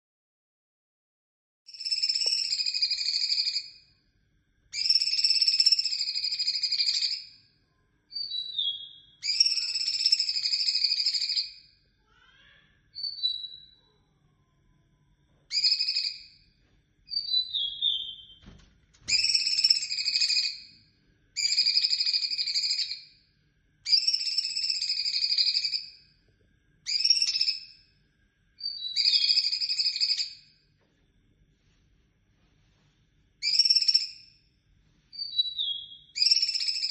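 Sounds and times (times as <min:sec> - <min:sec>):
songbird high-pitched calls: 0:01.7 - 0:03.8, 0:04.7 - 0:07.4, 0:08.1 - 0:14.0, 0:15.5 - 0:16.4, 0:17.1 - 0:18.4, 0:19.1 - 0:20.8, 0:21.4 - 0:23.2, 0:23.8 - 0:26.0, 0:26.8 - 0:27.8, 0:28.6 - 0:30.6, 0:33.4 - 0:34.3, 0:35.1 - 0:36.9.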